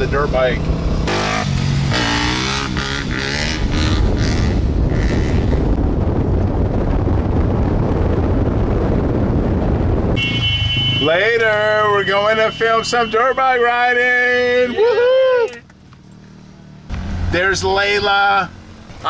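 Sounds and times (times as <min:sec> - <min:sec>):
dirt bike engine rumbling: 0:00.0 - 0:14.7.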